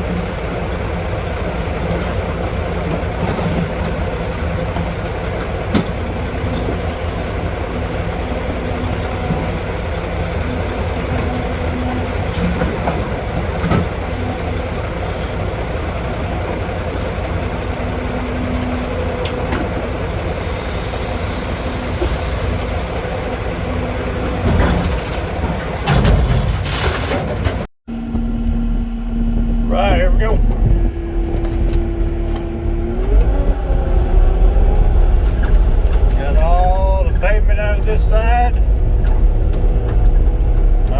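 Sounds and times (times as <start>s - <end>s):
heavy diesel engine working: 0.0s - 40.9s
metal knocks and clanks: 24.4s - 27.7s, 34.6s - 40.9s.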